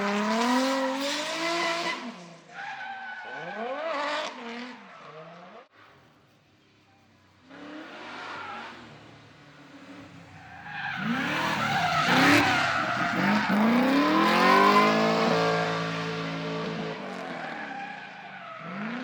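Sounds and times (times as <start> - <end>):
car engine revving: 9.7 - 19.0.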